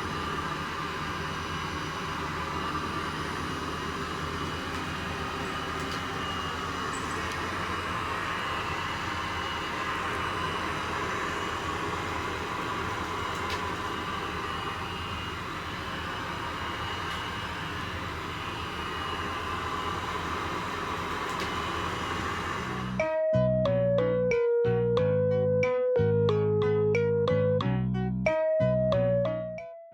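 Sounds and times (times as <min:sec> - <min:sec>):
robot vacuum cleaner whirring: 0:01.4 - 0:23.0
keyboard music: 0:22.7 - 0:29.9.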